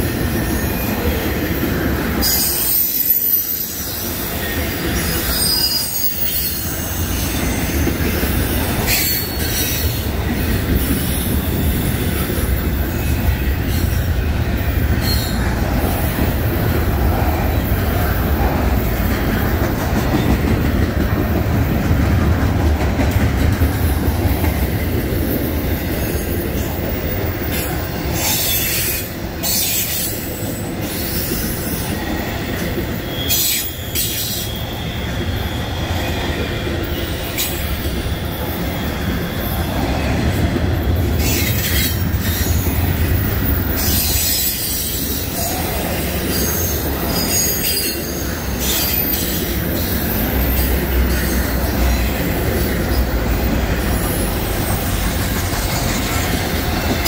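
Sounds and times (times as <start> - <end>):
train wheels rumbling on rail: 0.0 - 57.0
high-pitched wheel squeals: 2.2 - 14.0, 32.9 - 40.1.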